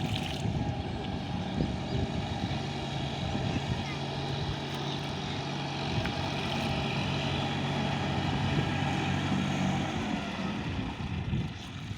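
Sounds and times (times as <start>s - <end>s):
tractor diesel engine running: 0.0s - 11.9s.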